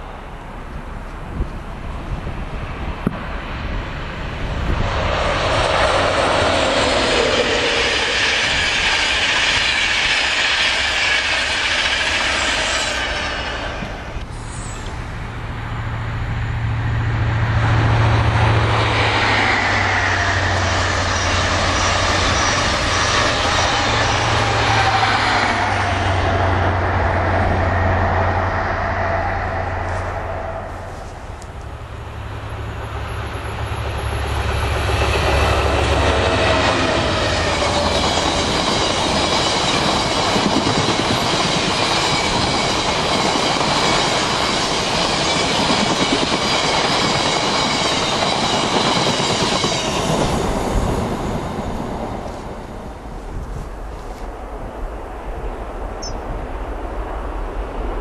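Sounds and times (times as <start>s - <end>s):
low drone: 0.0s - 40.0s
trains passing at speed: 0.0s - 58.0s.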